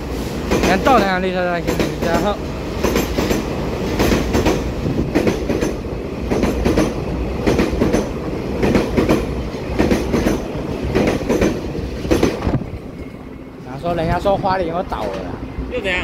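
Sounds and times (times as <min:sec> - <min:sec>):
electric train rumbling past: 0:00.0 - 0:16.0
wheels clicking over rail joints: 0:00.5 - 0:12.6.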